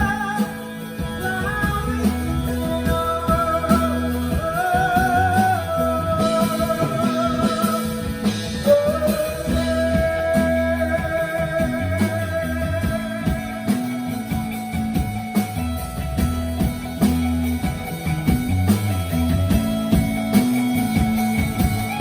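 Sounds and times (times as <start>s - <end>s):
held lead notes: 0.0s - 22.0s
repeating bass line: 0.0s - 22.0s
rock band playing live: 0.0s - 22.0s.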